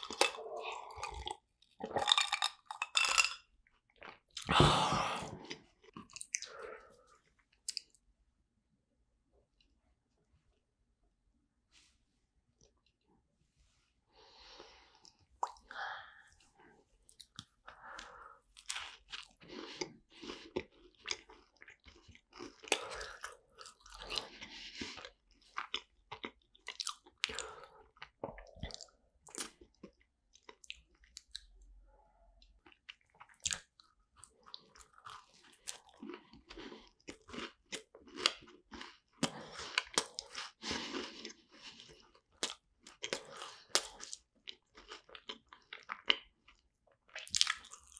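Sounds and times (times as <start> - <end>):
chewing crunchy food: 0.0 - 4.5, 5.2 - 8.0, 17.1 - 31.7, 32.4 - 47.9.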